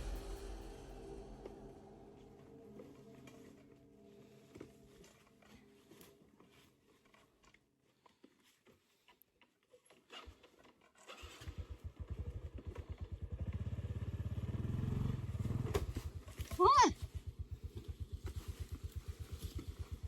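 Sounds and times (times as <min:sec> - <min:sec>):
small engine running: 0:11.0 - 0:20.0.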